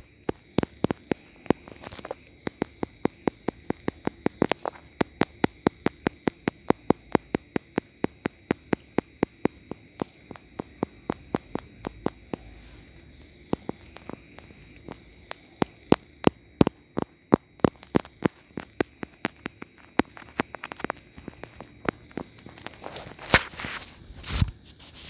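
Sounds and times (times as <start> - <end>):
sharp clicks or taps: 0.0 - 12.7.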